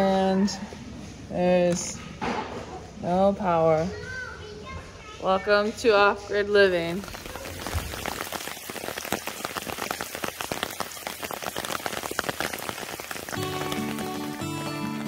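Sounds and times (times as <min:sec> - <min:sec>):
rain on solar panels: 0:05.7 - 0:15.0
acoustic guitar music: 0:13.3 - 0:15.0.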